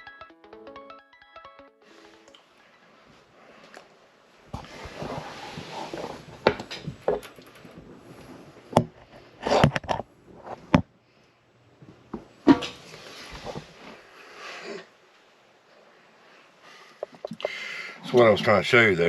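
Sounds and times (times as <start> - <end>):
rustling: 1.9 - 10.7, 12.8 - 14.8
hard parts knocking and clacking: 6.4 - 7.8.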